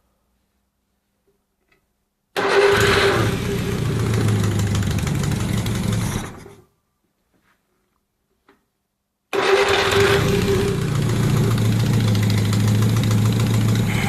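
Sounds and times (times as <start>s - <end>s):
car engine starting and running: 2.4s - 6.6s, 9.4s - 14.0s.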